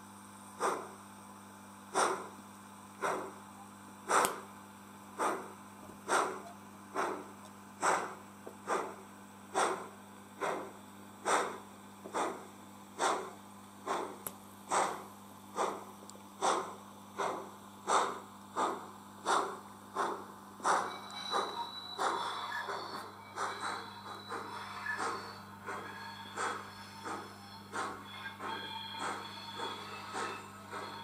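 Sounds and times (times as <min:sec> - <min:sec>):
steam locomotive chuffing from speaker: 0:00.6 - 0:01.0, 0:01.9 - 0:02.4, 0:05.1 - 0:31.0.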